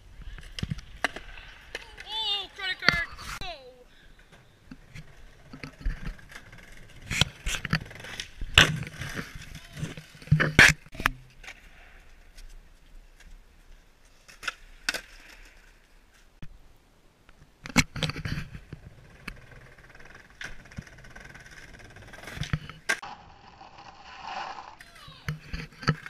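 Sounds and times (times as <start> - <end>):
skateboard wheels rolling: 0.2 - 16.3, 17.8 - 26.0
skateboard cracking on pavement: 5.1 - 12.0, 17.8 - 26.0.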